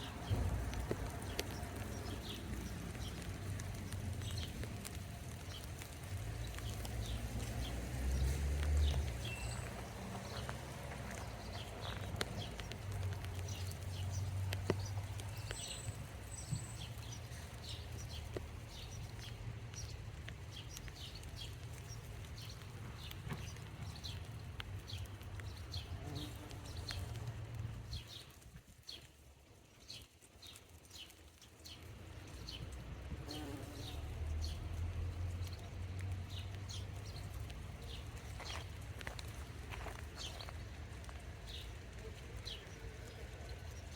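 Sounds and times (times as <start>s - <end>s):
bumblebees buzzing: 33.1s - 34.5s.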